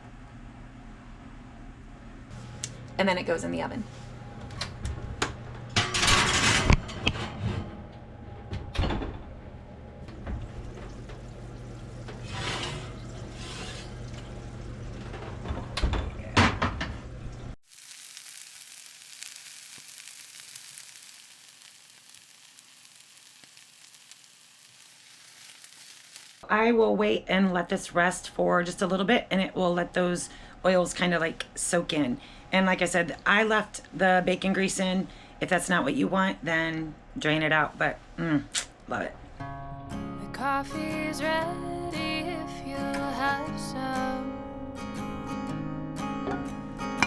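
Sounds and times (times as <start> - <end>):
dish and oven clatter: 5.7 - 7.8, 12.1 - 14.4
hot dish sizzling: 17.6 - 26.4.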